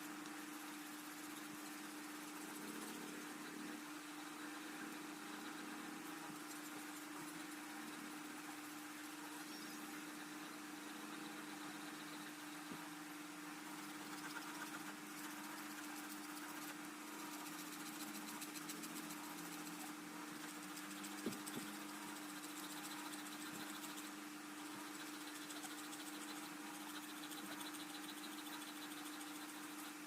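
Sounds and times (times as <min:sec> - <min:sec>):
small motor humming: 0:13.6 - 0:30.0.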